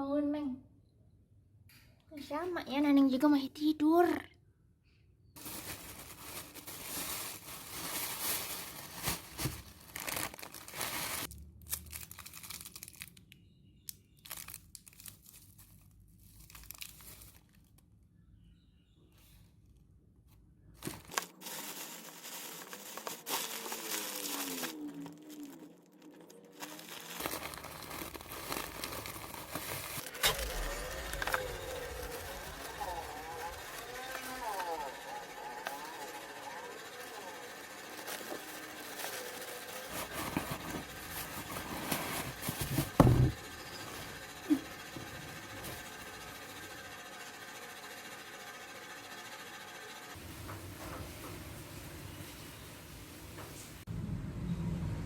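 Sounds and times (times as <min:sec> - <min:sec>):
rustling and crinkling: 0:05.4 - 0:13.4, 0:14.2 - 0:17.9, 0:19.2 - 0:35.1, 0:37.8 - 0:46.1.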